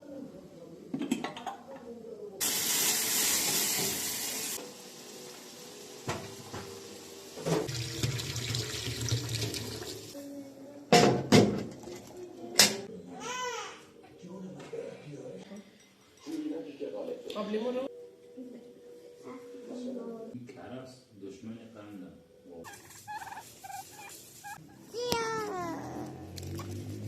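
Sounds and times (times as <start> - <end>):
water running from a tap: 2.4 - 10.2.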